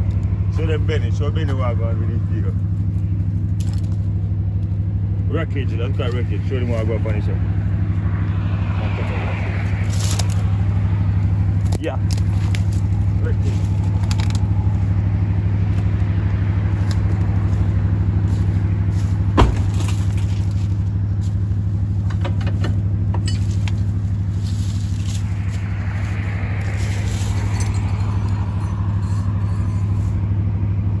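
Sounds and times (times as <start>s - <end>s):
vehicle engine idling: 0.0s - 31.0s.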